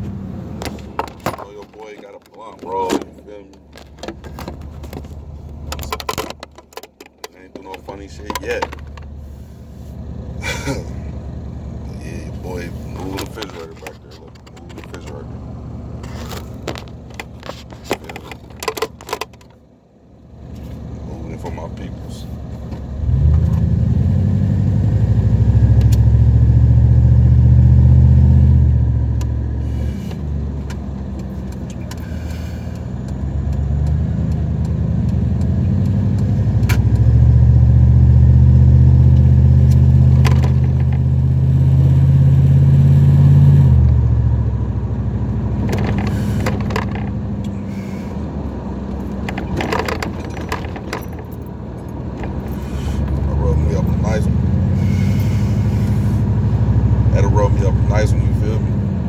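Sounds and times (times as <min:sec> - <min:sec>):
truck engine and road drone: 0:00.0 - 0:59.0
light clicks and rattles: 0:13.0 - 0:15.3, 0:45.6 - 0:47.2, 0:48.9 - 0:53.3.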